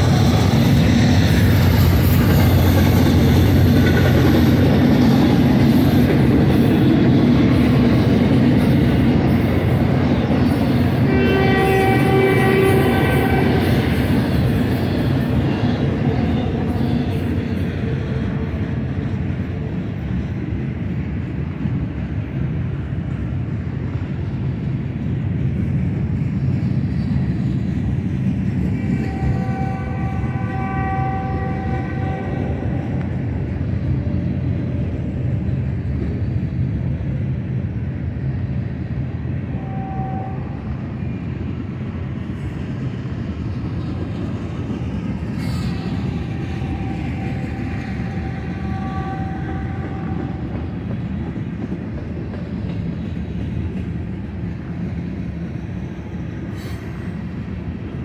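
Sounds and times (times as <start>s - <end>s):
train wheels rumbling on rails: 0.0s - 58.0s
locomotive horn: 11.0s - 14.2s, 28.9s - 33.1s, 39.5s - 40.7s, 46.2s - 50.7s.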